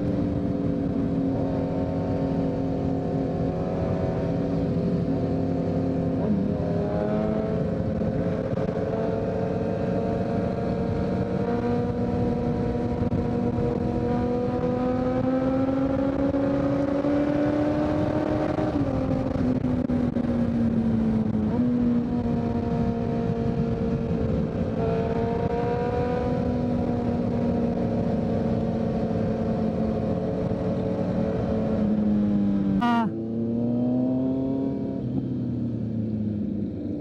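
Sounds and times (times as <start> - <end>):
motorcycle engine cruising: 0.0 - 36.9.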